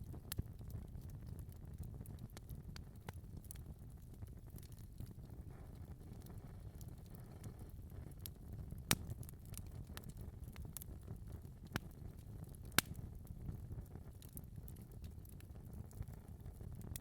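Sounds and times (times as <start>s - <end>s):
sharp pops from fire: 0.0s - 17.0s
wood fire crackling: 0.0s - 17.0s.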